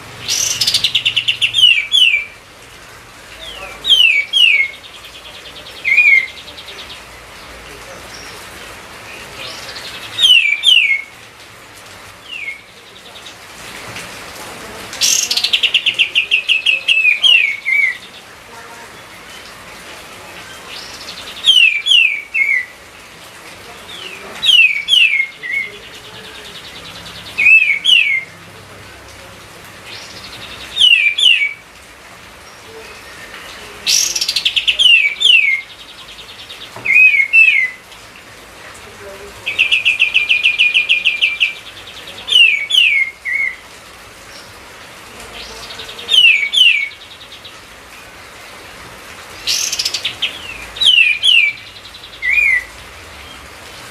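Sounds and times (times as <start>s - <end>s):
songbird whistling: 10.2s - 11.1s, 50.8s - 51.6s.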